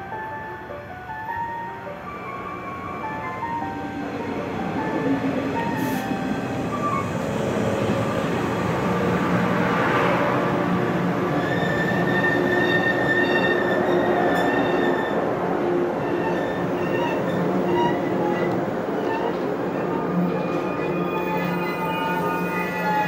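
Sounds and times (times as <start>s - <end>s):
train wheels rumbling on rails: 3.0s - 23.0s.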